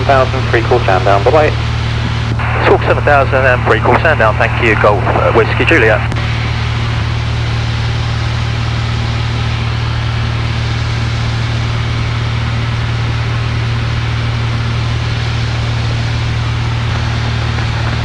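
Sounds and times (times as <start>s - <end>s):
air noise: 0.0s - 18.0s
airplane engine droning: 0.0s - 18.0s.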